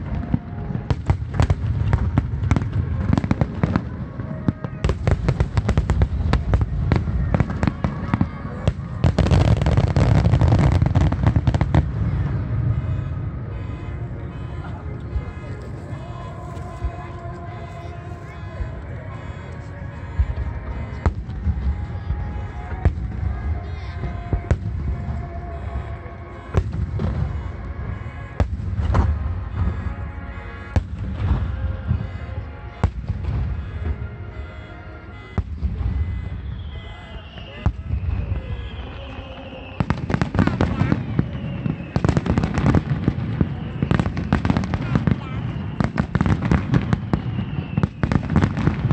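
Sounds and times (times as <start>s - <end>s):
fireworks bursting: 0.0s - 48.9s
music over loudspeakers: 13.6s - 38.2s.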